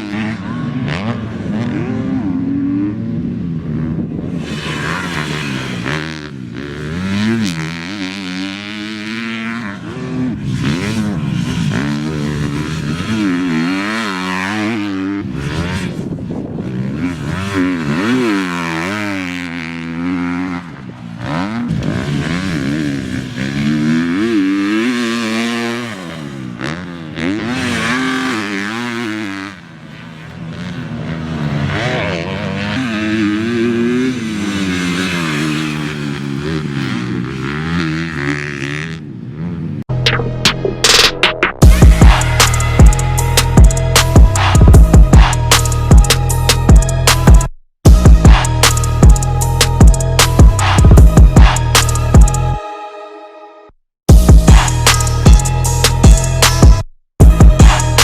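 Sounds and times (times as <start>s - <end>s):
motocross bike engine revving: 0.0s - 52.4s, 54.1s - 58.0s.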